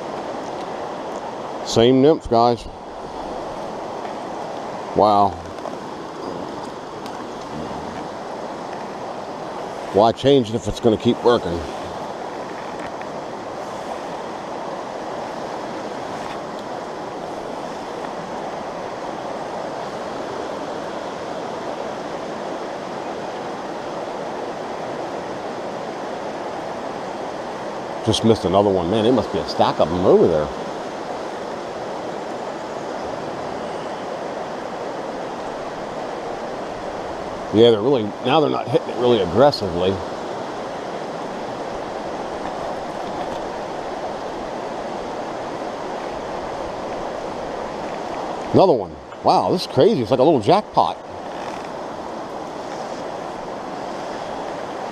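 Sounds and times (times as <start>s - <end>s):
stream water rushing: 0.0s - 54.9s.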